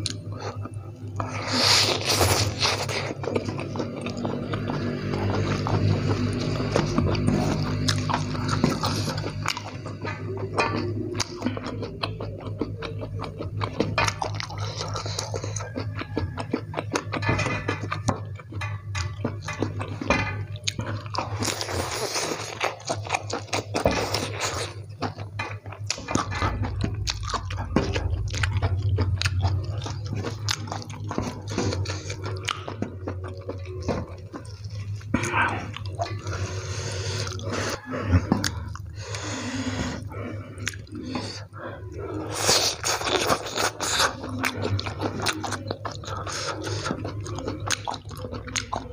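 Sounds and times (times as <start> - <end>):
man chewing noodles: 0.0 - 48.9.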